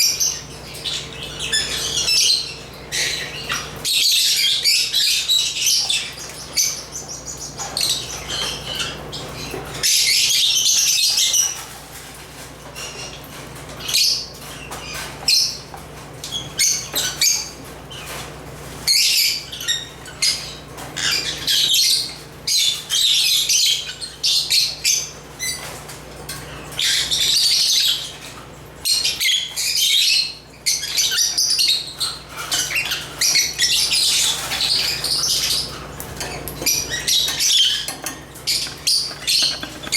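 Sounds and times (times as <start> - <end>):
lovebirds chirping and squawking: 0.0 - 11.8, 12.7 - 25.8, 26.4 - 39.9.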